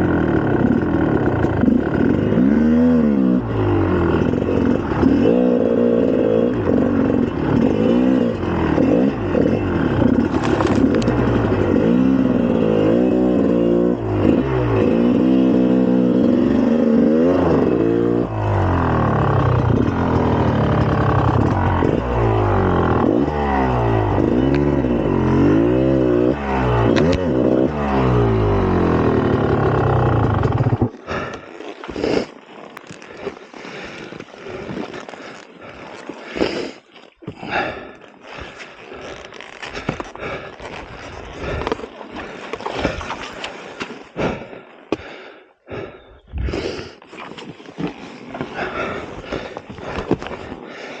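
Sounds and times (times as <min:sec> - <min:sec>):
two-stroke engine revving: 0:00.0 - 0:36.8, 0:37.4 - 0:47.0, 0:48.4 - 0:51.0
scrapes and rustles: 0:46.9 - 0:50.7.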